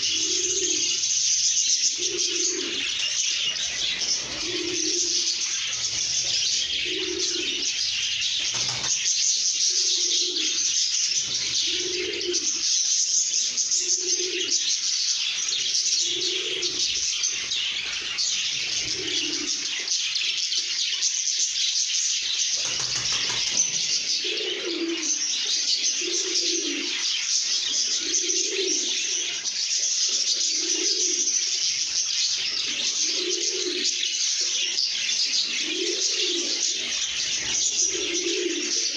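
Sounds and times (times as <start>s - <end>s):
low cooing call: 0.0s - 1.0s, 1.9s - 2.9s, 4.2s - 5.4s, 6.7s - 7.8s, 11.6s - 12.6s, 24.2s - 25.2s, 28.0s - 29.4s, 30.4s - 31.3s, 32.9s - 34.0s, 35.6s - 36.9s, 37.7s - 38.9s
birds chirping and twittering: 0.0s - 38.9s.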